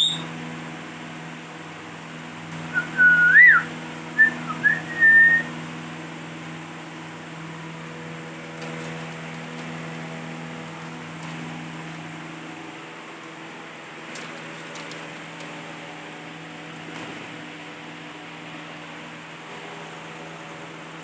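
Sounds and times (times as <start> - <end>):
parrot whistling: 0.0 - 0.3, 2.7 - 5.5
steady low hum: 0.0 - 21.0.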